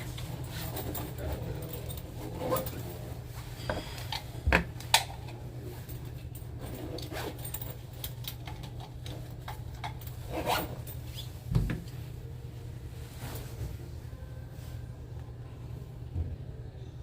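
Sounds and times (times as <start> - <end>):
handling clicks and rustles: 0.0 - 12.0
steady low hum: 0.0 - 17.0.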